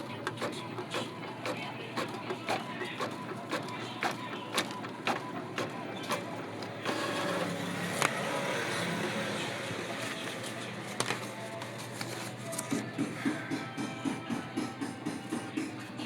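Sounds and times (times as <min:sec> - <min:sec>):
printer mechanical whir: 0:00.0 - 0:16.0
printer mechanism clicking: 0:00.1 - 0:08.2.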